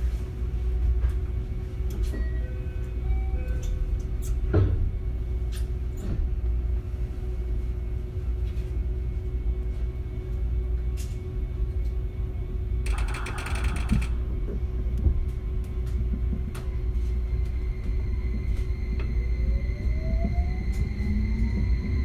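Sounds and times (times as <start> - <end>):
wheels rumbling on rail: 0.0 - 22.0
steady hum: 12.4 - 16.2
clicks: 12.9 - 14.2
dense clatter of rapid clicks: 12.9 - 14.2.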